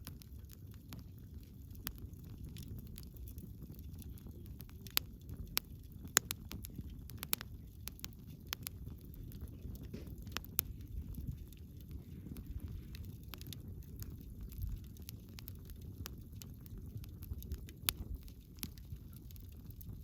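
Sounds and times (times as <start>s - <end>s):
firewood crackling and popping: 0.0s - 20.0s
low rumble of flames: 0.0s - 20.0s.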